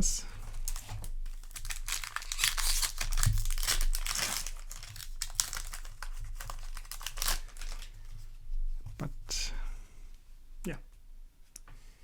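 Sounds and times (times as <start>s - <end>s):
foil wrapper crinkling: 0.3s - 8.2s.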